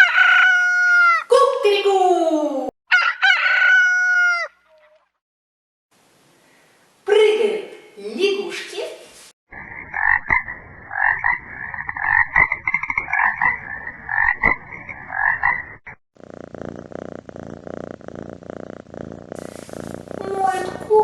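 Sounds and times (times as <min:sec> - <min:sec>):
frogs croaking in chorus: 0:09.6 - 0:15.6
cat purring: 0:16.2 - 0:21.0.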